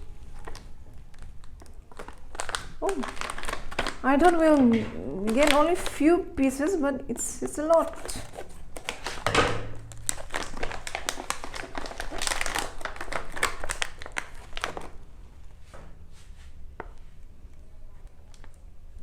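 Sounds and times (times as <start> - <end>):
packaging crinkling and rustling: 0.0 - 6.1, 7.4 - 15.1.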